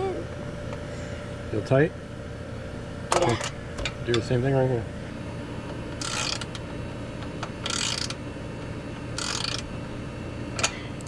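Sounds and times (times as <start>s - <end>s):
ratchet wrench clicking: 6.0s - 6.6s, 7.6s - 8.2s, 9.2s - 9.7s.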